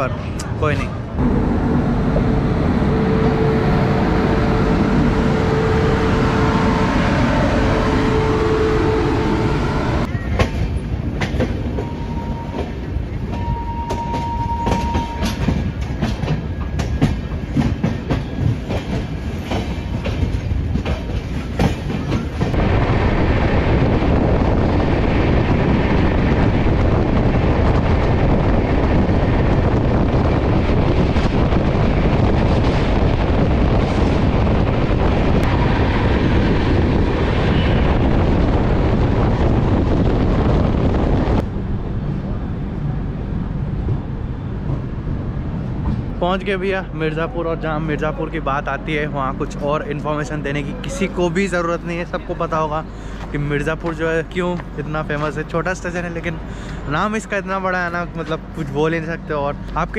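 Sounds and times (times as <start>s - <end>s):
brief steady tone: 13.3s - 15.4s
train wheels clicking over joints: 13.9s - 22.6s
rush of wheels and wind: 15.3s - 46.2s.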